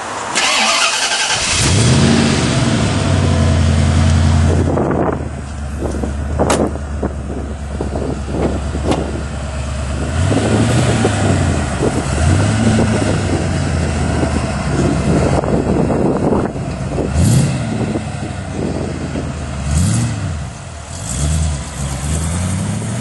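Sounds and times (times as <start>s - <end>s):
car engine idling: 0.0s - 23.0s
engine starter cranking: 0.4s - 2.0s
engine revving: 0.4s - 5.2s, 9.8s - 23.0s.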